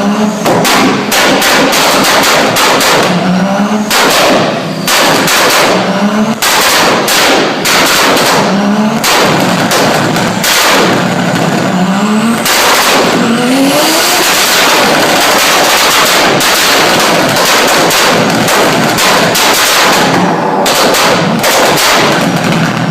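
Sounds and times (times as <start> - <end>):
car engine revving: 0.0 - 22.9
exhaust pops and bangs: 0.3 - 22.9.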